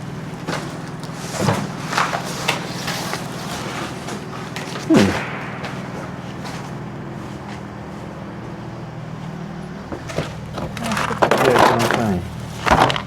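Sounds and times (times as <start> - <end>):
rattling clatter: 0.3 - 13.0
knocks: 4.9 - 8.5.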